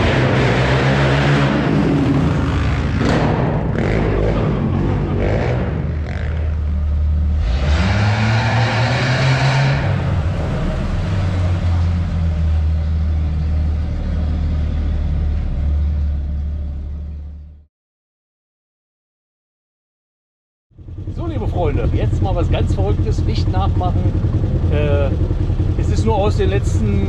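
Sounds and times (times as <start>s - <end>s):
engines idling low hum: 0.0s - 7.6s, 9.8s - 17.6s, 20.8s - 27.0s
vehicle driving past: 0.0s - 17.6s.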